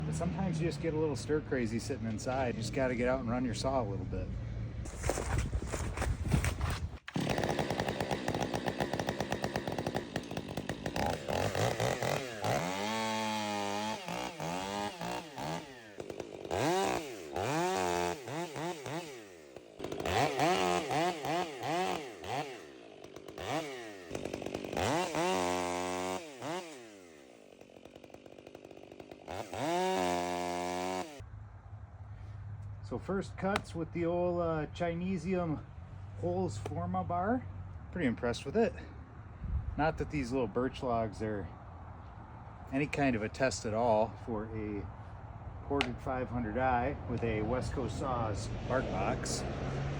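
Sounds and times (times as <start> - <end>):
chainsaw cutting logs: 4.9 - 31.3, 45.8 - 49.9.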